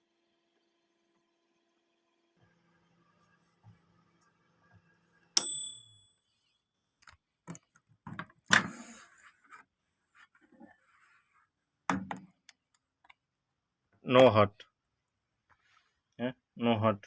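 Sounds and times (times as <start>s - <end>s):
microwave oven humming: 0.0s - 5.9s
microwave bell ding: 5.4s - 6.2s.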